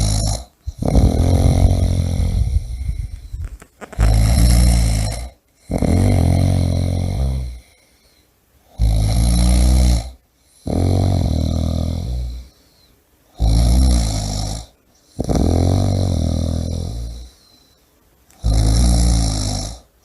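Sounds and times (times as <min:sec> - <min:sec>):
person snoring: 0:00.0 - 0:07.9, 0:08.7 - 0:12.6, 0:13.4 - 0:17.4, 0:18.4 - 0:19.9.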